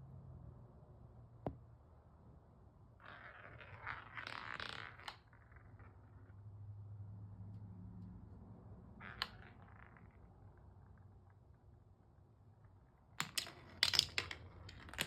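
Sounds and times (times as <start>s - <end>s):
marbles clicking on wooden track: 3.0s - 6.3s, 9.0s - 11.4s, 12.6s - 15.0s
marbles rolling and rattling: 3.0s - 6.4s, 9.0s - 11.6s, 12.6s - 15.0s.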